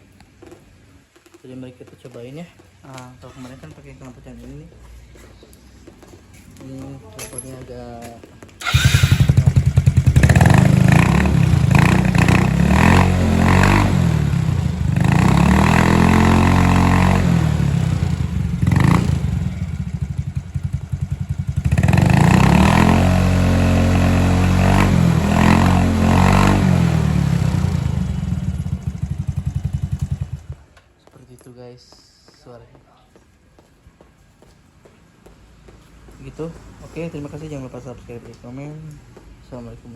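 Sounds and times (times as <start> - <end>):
scooter engine revving: 8.6 - 30.7.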